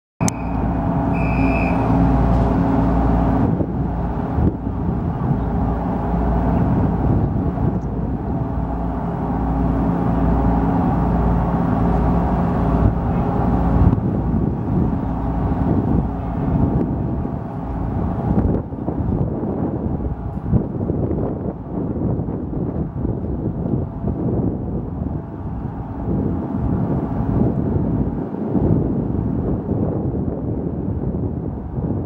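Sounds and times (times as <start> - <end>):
diesel engines rumbling: 0.2 - 29.9
short high beep: 1.2 - 1.8.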